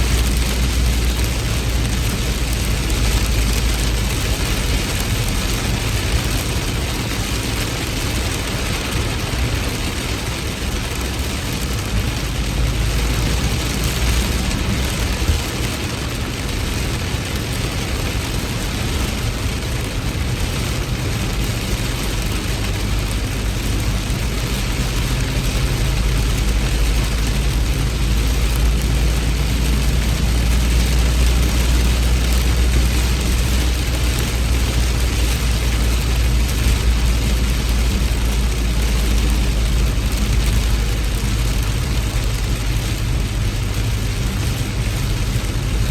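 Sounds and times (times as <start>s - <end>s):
heavy rain hissing: 0.0s - 45.9s.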